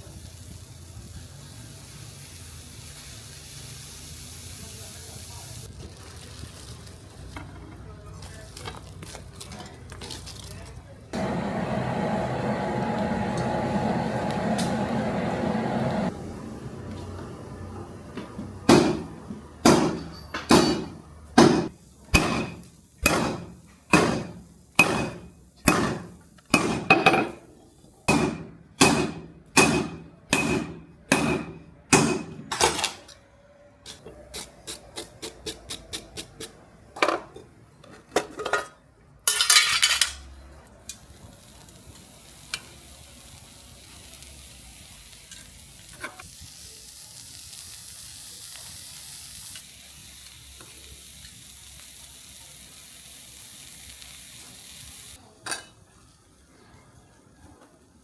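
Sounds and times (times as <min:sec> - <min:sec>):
hammer striking steel on anvil: 0:18.7 - 0:27.3, 0:28.1 - 0:32.5.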